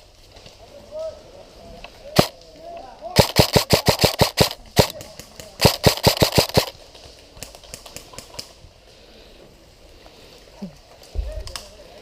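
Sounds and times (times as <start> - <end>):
airsoft gun shots: 3.2 - 5.0, 5.6 - 6.7.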